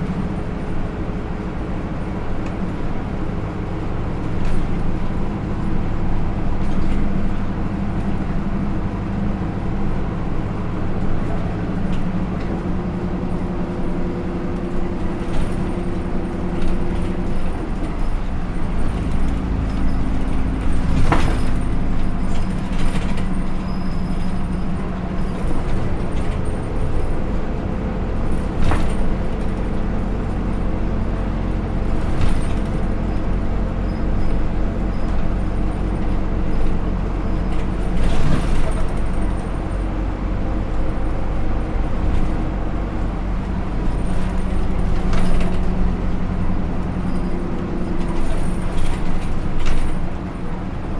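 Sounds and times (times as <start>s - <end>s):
bus engine running: 0.0s - 50.9s
rattles and clicks: 10.6s - 50.9s.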